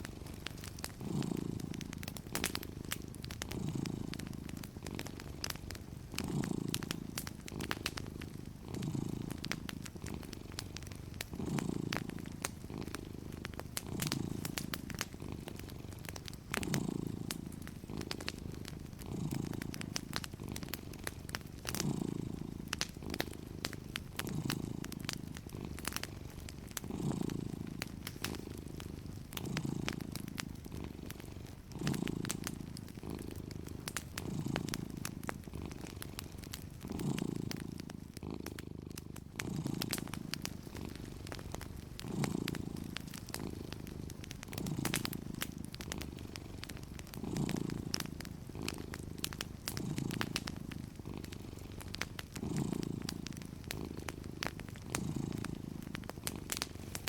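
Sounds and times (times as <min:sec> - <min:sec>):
cat purring: 0:00.0 - 0:57.0
wood fire crackling: 0:00.0 - 0:57.0.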